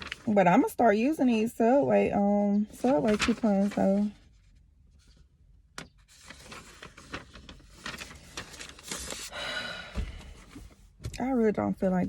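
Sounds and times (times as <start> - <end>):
paper rustling: 0.0 - 0.4, 2.7 - 9.4.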